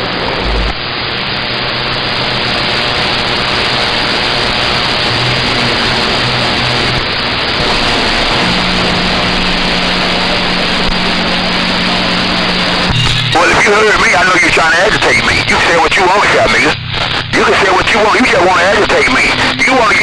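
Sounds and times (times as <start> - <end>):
radio static hiss: 0.0 - 20.0.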